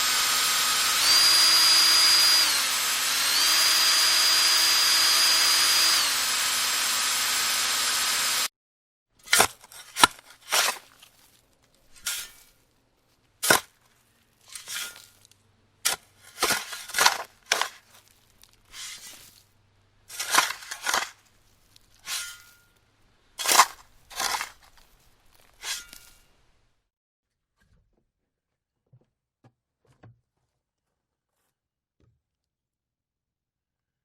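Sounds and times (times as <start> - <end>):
tool knocking and scraping: 13.4 - 19.4, 20.0 - 22.8, 23.4 - 26.4.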